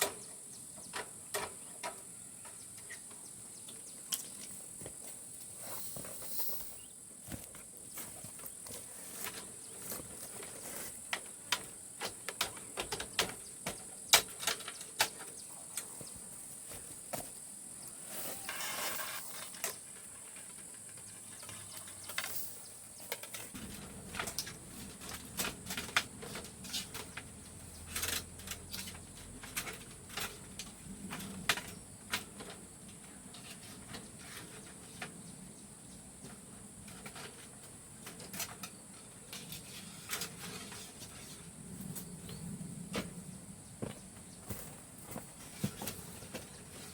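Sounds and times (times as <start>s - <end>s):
insect drone: 8.3s - 28.9s.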